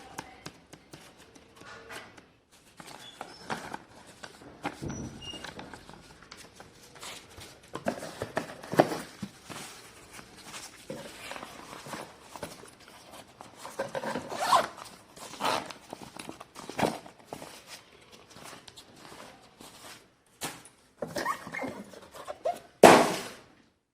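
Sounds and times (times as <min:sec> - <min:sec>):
packaging rustling: 0:02.6 - 0:22.7.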